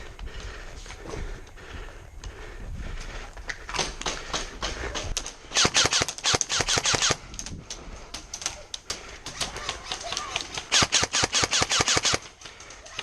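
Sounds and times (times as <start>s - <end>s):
airsoft guns firing: 3.7s - 7.2s, 9.4s - 12.6s.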